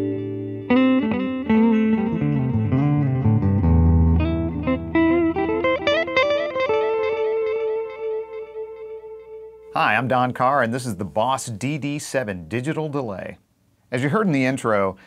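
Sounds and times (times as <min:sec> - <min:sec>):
electric guitar with delay: 0:00.0 - 0:09.7.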